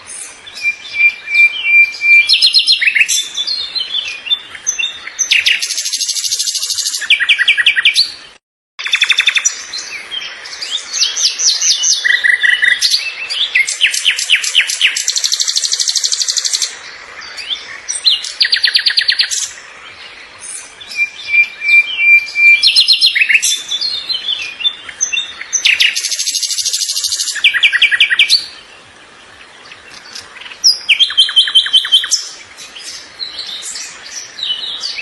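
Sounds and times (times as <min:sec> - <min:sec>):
songbird trilling: 0:00.2 - 0:08.2, 0:20.4 - 0:28.7, 0:29.6 - 0:35.0.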